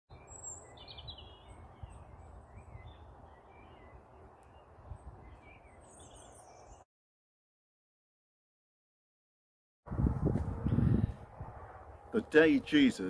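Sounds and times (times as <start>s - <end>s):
small birds chirping: 0.1s - 6.8s.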